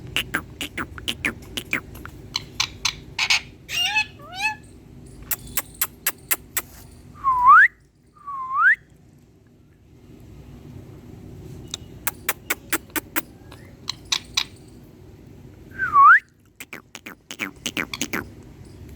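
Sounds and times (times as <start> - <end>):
parrot clicking: 0.0 - 2.8, 5.3 - 6.7, 12.1 - 13.3, 16.6 - 18.3
parrot warbling chirps: 0.0 - 4.7, 12.1 - 14.6, 16.6 - 18.3.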